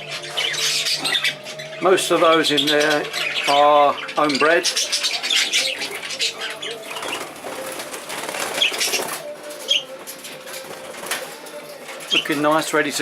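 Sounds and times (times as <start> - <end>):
budgerigars chattering and chirping: 0.0 - 10.4, 11.7 - 13.0
wings fluttering: 5.6 - 12.5.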